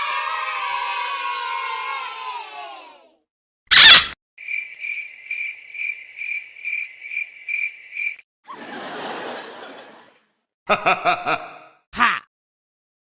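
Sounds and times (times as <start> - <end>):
children cheering: 0.0 - 3.2, 8.5 - 10.1
cricket chirps: 4.4 - 8.2.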